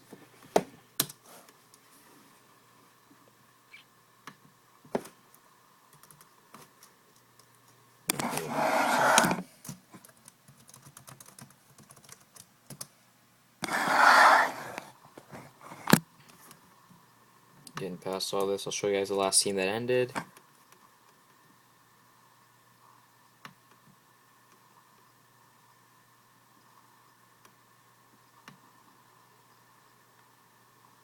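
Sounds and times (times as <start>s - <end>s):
typing on computer keyboard: 5.9s - 7.5s, 9.6s - 12.9s.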